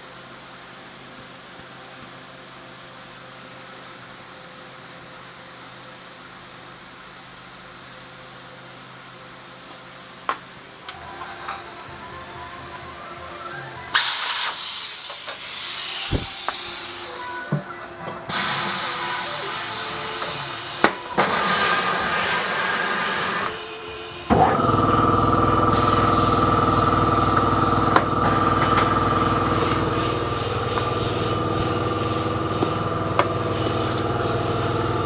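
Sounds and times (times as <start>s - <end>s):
motor humming: 12.6s - 35.0s
compressed air hissing: 13.9s - 17.6s, 18.3s - 35.0s.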